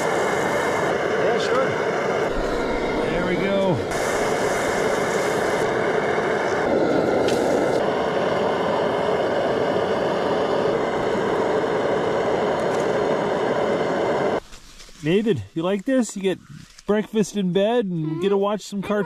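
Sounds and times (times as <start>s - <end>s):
loud rushing noise: 0.0s - 14.4s
high hiss: 0.0s - 17.0s.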